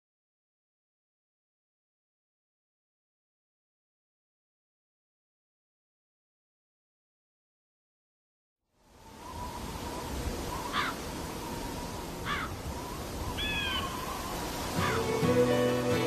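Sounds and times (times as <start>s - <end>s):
short bird-like calls: 9.2s - 15.8s
plucked guitar music: 14.7s - 16.0s.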